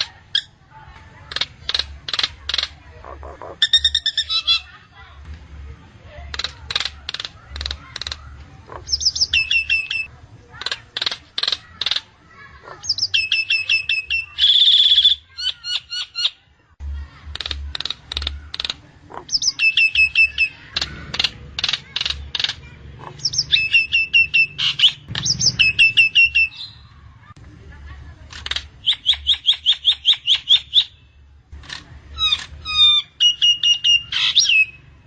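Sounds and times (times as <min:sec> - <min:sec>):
myna bird whistling calls: 0:03.4 - 0:04.7, 0:08.8 - 0:10.1, 0:12.8 - 0:16.4, 0:19.2 - 0:20.6, 0:23.2 - 0:26.8, 0:28.8 - 0:31.0, 0:32.2 - 0:34.8
sharp chirps and clicks: 0:06.3 - 0:12.1, 0:17.2 - 0:27.0, 0:28.3 - 0:31.0.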